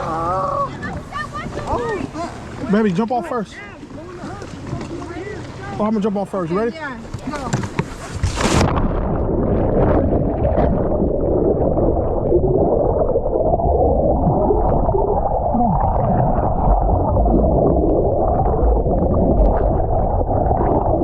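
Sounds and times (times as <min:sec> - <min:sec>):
muffled water sloshing and bubbling: 0:07.0 - 0:21.0.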